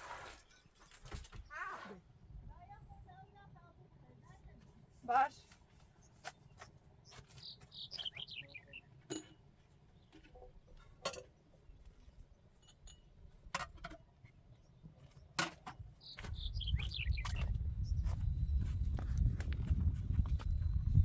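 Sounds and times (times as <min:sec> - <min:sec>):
bird chirping: 0:06.0 - 0:09.1, 0:16.0 - 0:18.6.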